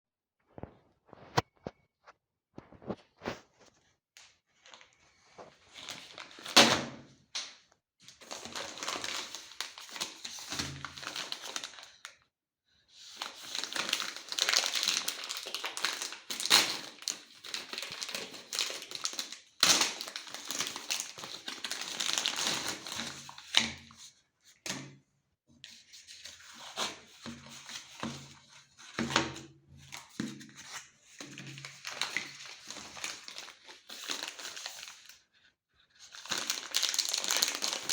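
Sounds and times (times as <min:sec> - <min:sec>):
packaging crinkling and tearing: 0:05.4 - 0:06.8, 0:08.1 - 0:12.1, 0:13.0 - 0:23.9, 0:30.0 - 0:35.2, 0:36.0 - 0:37.9.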